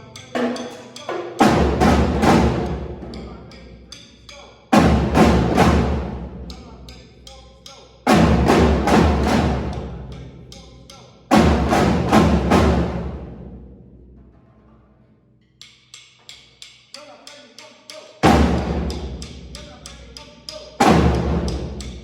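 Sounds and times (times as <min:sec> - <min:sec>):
light ticking percussion: 0:00.0 - 0:08.0, 0:08.9 - 0:11.2, 0:15.5 - 0:22.0
music with heavy drum hits: 0:00.2 - 0:03.4, 0:04.8 - 0:07.0, 0:08.1 - 0:10.6, 0:11.3 - 0:14.2, 0:18.2 - 0:22.0.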